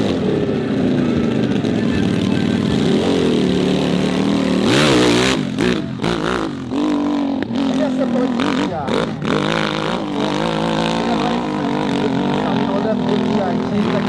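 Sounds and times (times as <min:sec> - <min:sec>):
motorcycle engine revving high: 0:00.0 - 0:14.0.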